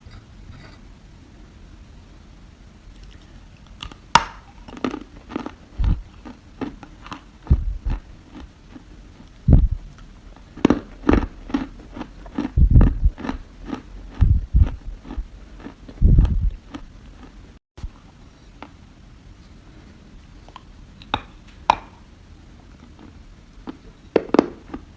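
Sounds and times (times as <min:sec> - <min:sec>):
dry soil being chewed: 0:02.9 - 0:18.8, 0:22.7 - 0:24.9.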